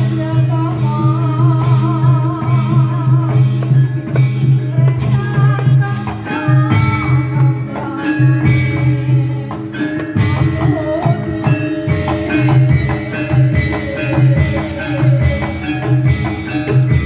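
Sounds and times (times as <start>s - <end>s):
wavering melody line: 0.1s - 17.0s
heavy drum strokes: 10.2s - 17.0s.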